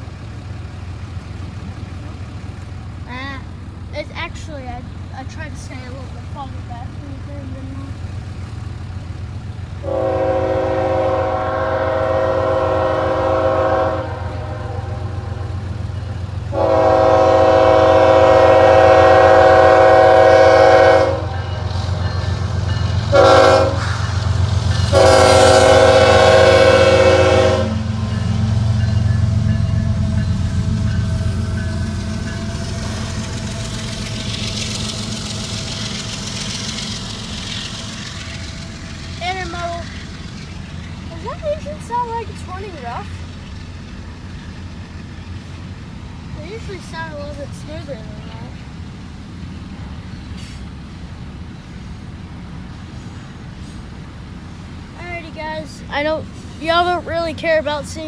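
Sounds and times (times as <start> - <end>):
wheels hissing on rail: 0.0 - 58.0
low rumble: 4.8 - 50.1
locomotive air horn blasts: 9.8 - 15.7, 16.5 - 37.0.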